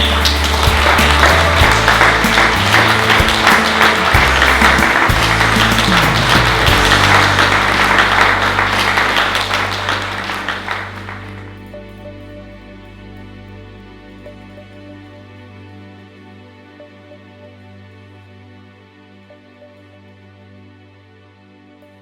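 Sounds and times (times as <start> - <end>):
audience applauding: 0.0 - 11.6
background music with bass line: 0.0 - 19.0.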